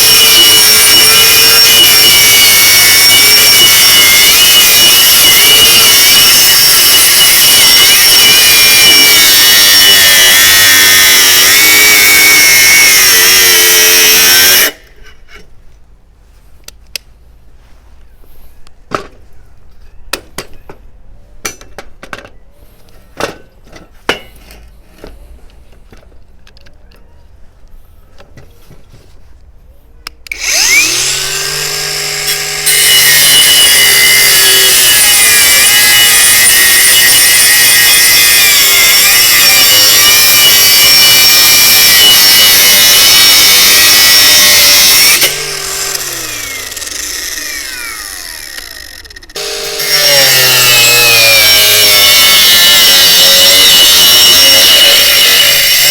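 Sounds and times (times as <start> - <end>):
angle grinder cutting: 0.0 - 15.3, 30.3 - 55.9.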